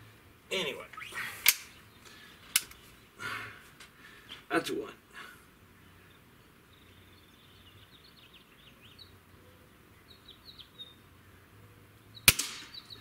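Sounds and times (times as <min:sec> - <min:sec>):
faint bird chirps and trill: 0:05.7 - 0:13.0.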